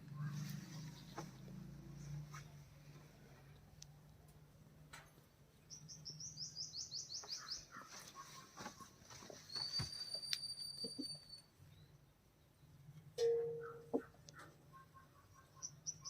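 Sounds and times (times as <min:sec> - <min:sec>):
bird chirping: 0:05.5 - 0:12.8, 0:13.4 - 0:16.0.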